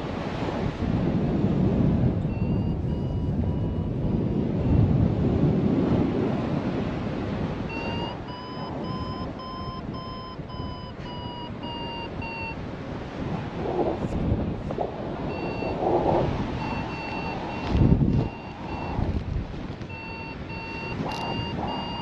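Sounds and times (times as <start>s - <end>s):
wind buffeting microphone: 0.0s - 22.0s
variometer beeping: 2.2s - 5.1s, 7.6s - 12.6s, 15.2s - 22.0s.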